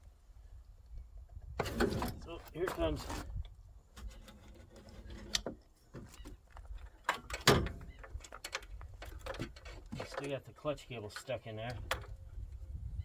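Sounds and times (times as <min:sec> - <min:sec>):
metallic clunks and knocks: 0:07.1 - 0:10.3.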